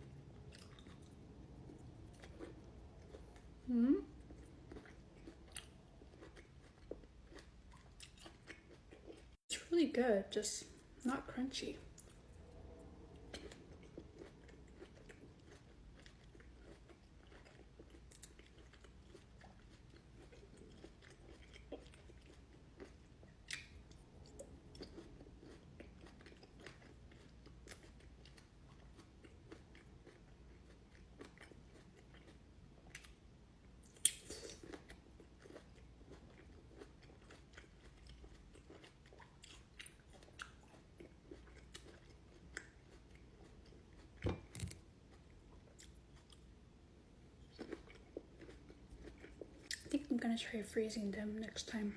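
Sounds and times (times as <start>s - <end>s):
chewing and biting grapes: 0.1s - 9.4s, 13.2s - 33.2s, 33.8s - 46.6s, 47.4s - 50.0s.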